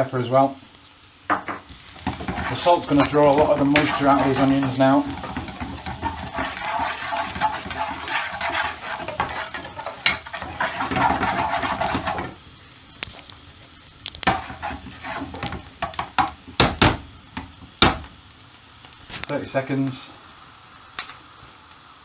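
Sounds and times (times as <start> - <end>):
onions sizzling in a pan: 0.0 - 22.0
stirring in a pan: 1.2 - 18.4
utensil knocking on pan: 1.3 - 12.4, 14.1 - 18.1.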